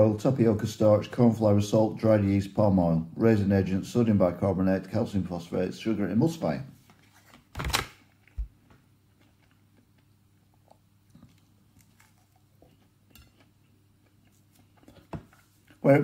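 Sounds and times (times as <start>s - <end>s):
person biting and chewing prawn: 9.2s - 15.1s.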